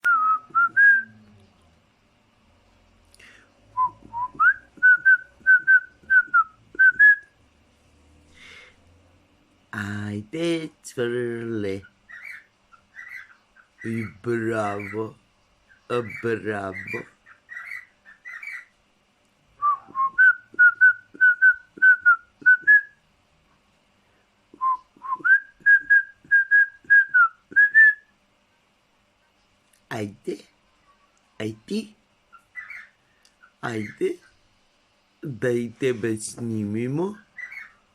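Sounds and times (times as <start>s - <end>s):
parrot whistling: 0.0s - 1.2s, 3.8s - 7.4s, 12.1s - 15.0s, 15.9s - 18.7s, 19.6s - 23.0s, 24.6s - 28.1s, 37.3s - 37.8s.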